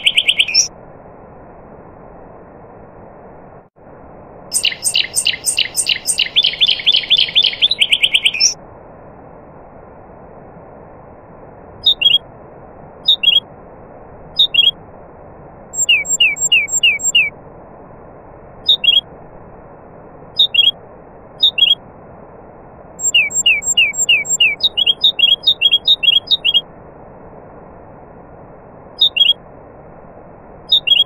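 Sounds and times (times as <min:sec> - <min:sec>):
songbird whistled notes: 0:00.0 - 0:00.7, 0:04.5 - 0:08.6, 0:11.8 - 0:12.2, 0:13.1 - 0:13.4, 0:14.4 - 0:14.8, 0:15.8 - 0:17.3, 0:18.7 - 0:19.0, 0:20.4 - 0:20.8, 0:21.4 - 0:21.8, 0:23.0 - 0:26.6, 0:29.0 - 0:29.4, 0:30.7 - 0:31.0
steady rushing background noise: 0:00.0 - 0:31.0.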